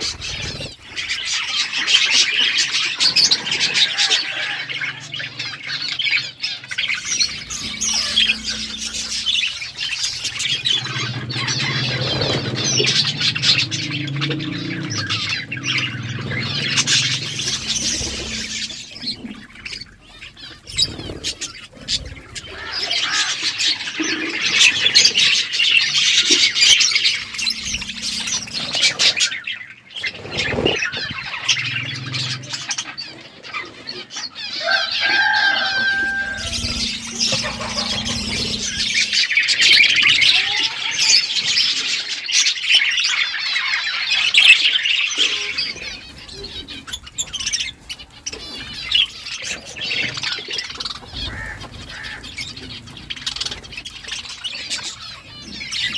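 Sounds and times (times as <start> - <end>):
budgerigars chattering: 0.0 - 55.9
whistled bird note: 6.7 - 21.6, 35.1 - 40.1.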